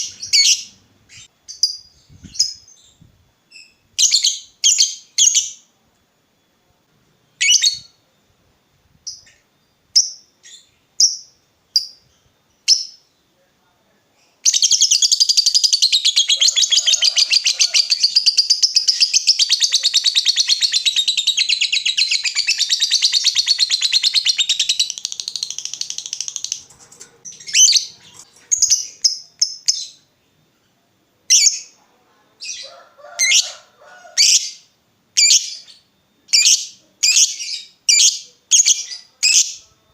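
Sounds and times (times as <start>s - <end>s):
lovebird chirps: 0.0s - 5.7s, 7.3s - 8.0s, 14.4s - 30.7s, 34.2s - 39.6s
lovebird rapid chattering trill: 14.5s - 29.9s.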